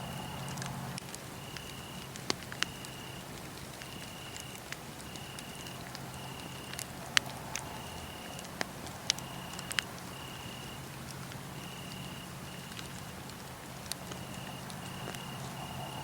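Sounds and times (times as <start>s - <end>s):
cricket trilling: 0.0s - 13.2s, 14.0s - 16.0s
wood fire crackling: 0.0s - 16.0s.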